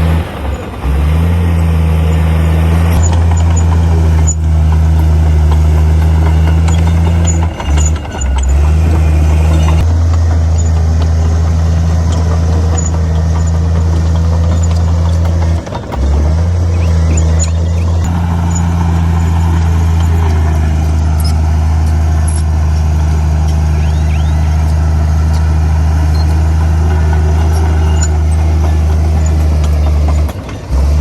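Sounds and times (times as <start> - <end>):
heavy diesel machinery engine: 0.0 - 31.0.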